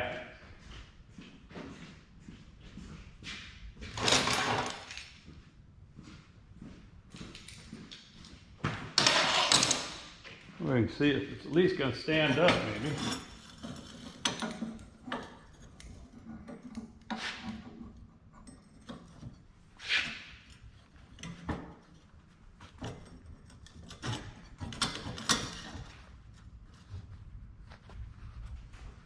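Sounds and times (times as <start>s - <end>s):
metal knocks clinks and scrapes: 3.9s - 5.0s, 11.7s - 26.9s.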